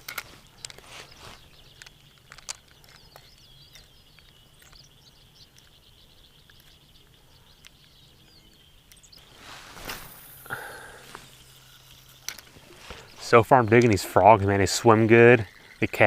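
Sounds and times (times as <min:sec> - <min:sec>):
faint clicks: 0:00.0 - 0:09.2
birds chirping: 0:00.0 - 0:16.0.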